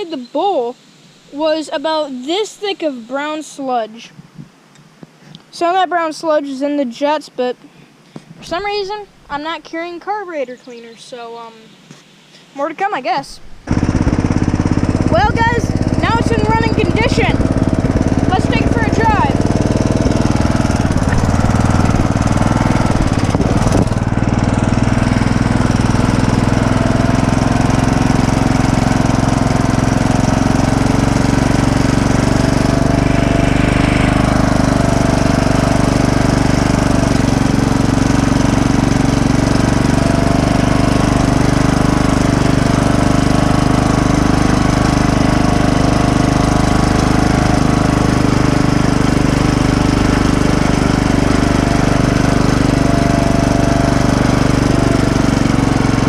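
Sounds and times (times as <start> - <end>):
lawn tractor engine running: 13.4 - 56.0.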